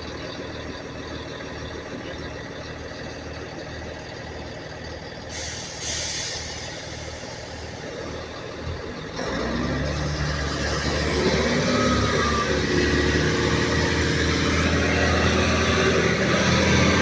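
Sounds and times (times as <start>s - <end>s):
diesel train engine idling: 0.0s - 17.0s
air brakes hissing: 5.3s - 8.6s.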